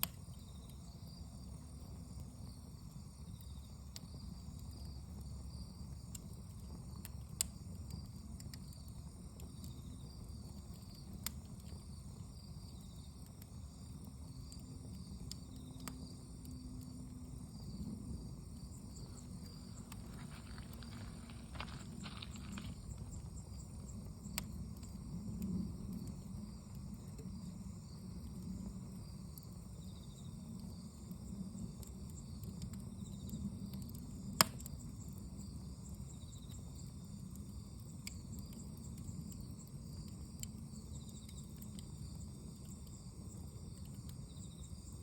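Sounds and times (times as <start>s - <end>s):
insects chirring: 0.0s - 45.0s
wood fire crackling and popping: 0.0s - 45.0s.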